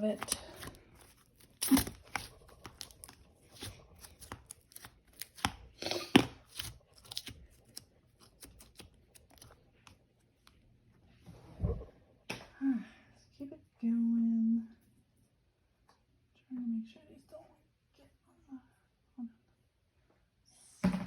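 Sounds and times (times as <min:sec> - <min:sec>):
slime clicking and squishing: 0:00.0 - 0:10.6.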